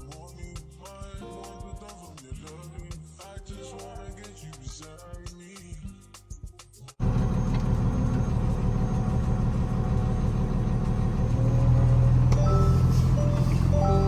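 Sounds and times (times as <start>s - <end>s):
truck engine drone: 7.0s - 14.0s
short tones: 11.4s - 14.0s.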